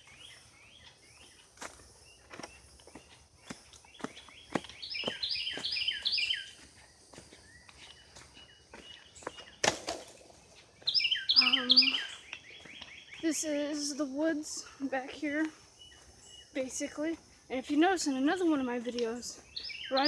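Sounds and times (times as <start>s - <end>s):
faint high insect drone: 0.0s - 20.0s
footsteps on woodland trail: 0.0s - 20.0s
songbird whistling: 4.3s - 6.6s, 10.9s - 13.2s, 19.5s - 20.0s.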